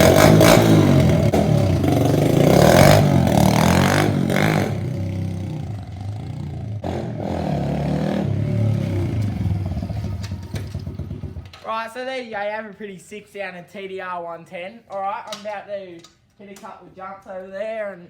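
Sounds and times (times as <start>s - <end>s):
motorbike engine revving: 0.0s - 11.6s.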